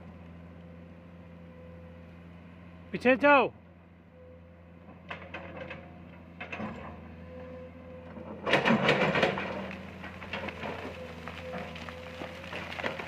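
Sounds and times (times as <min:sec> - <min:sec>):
excavator engine humming: 0:00.0 - 0:13.0
knocks and clattering: 0:08.2 - 0:13.0.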